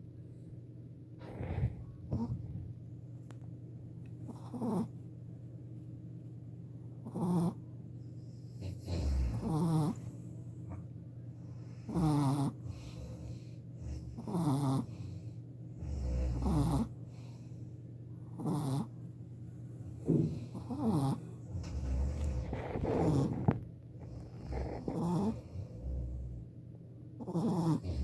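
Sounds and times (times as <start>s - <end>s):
puppy snoring squeakily: 1.2s - 2.4s, 4.3s - 4.9s, 7.0s - 7.6s, 8.6s - 10.0s, 11.9s - 13.2s, 13.9s - 15.2s, 15.9s - 16.9s, 18.3s - 18.9s, 20.4s - 26.4s, 27.2s - 28.0s.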